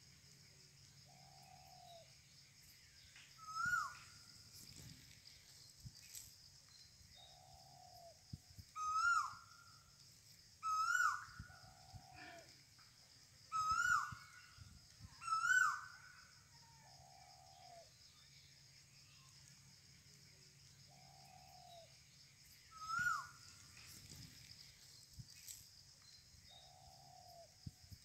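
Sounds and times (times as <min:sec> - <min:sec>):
softer lower bird calls: 0:03.4 - 0:04.2, 0:07.2 - 0:09.8, 0:10.6 - 0:12.7, 0:13.5 - 0:16.3, 0:22.6 - 0:23.5.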